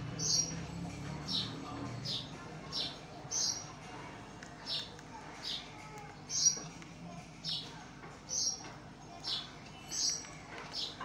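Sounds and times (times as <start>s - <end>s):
small bird chirping: 0.2s - 3.6s, 6.3s - 6.6s, 8.3s - 8.6s.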